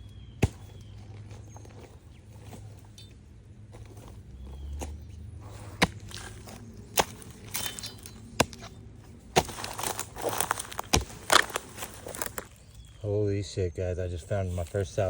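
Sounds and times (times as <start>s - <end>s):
footsteps in dry leaves: 3.7s - 13.0s
crackling rustle of leaves: 5.4s - 13.1s, 14.2s - 15.0s
sticks snapping: 5.8s - 8.8s, 9.4s - 12.6s.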